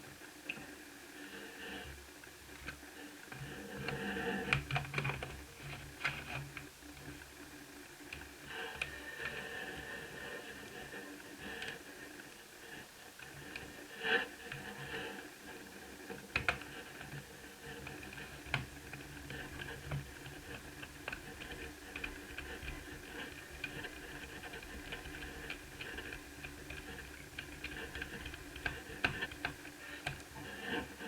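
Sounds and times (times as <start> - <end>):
faint steady hum: 0.0 - 31.0
light clicks and taps: 2.6 - 7.3, 16.2 - 17.2, 17.8 - 30.5.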